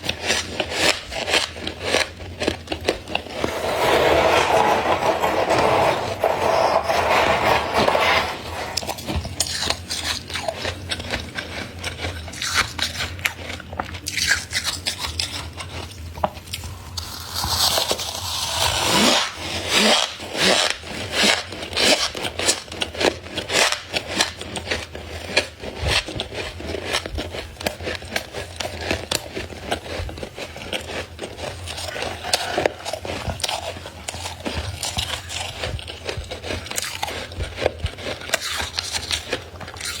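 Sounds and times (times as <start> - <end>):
frost scraping and crunching: 0.3 - 13.6, 28.0 - 40.0.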